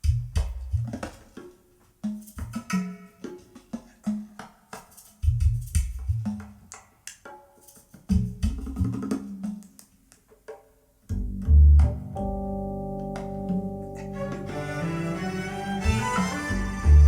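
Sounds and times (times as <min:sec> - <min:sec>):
deep bass thumps: 0:11.1 - 0:13.8
instrumental song over speaker: 0:13.1 - 0:17.0.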